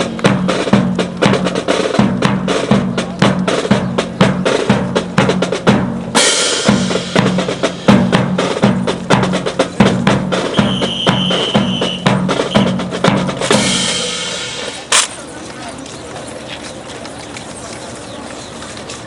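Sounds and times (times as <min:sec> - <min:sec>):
bass drum beat: 0:00.0 - 0:14.8
snare drum strokes: 0:00.0 - 0:15.2.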